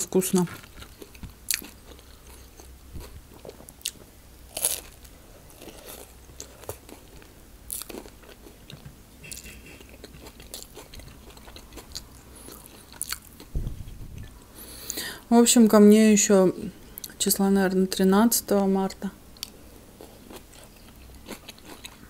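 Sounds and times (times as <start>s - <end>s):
crunchy bread chewing: 0.5s - 13.6s, 19.4s - 22.0s.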